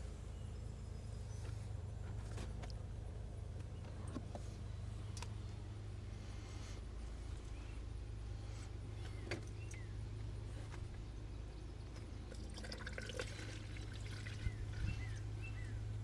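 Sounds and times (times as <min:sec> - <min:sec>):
steady low hum: 0:00.0 - 0:16.0
coolant trickling and gurgling: 0:11.8 - 0:16.0.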